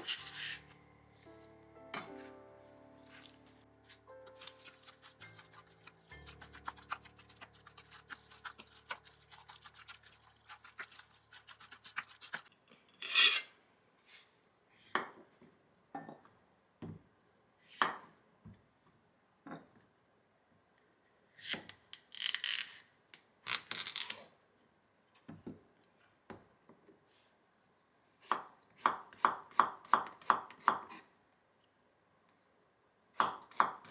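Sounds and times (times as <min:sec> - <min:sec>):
utensil scraping a bowl: 0:00.0 - 0:01.4, 0:03.9 - 0:13.6
soft background music: 0:00.0 - 0:10.7.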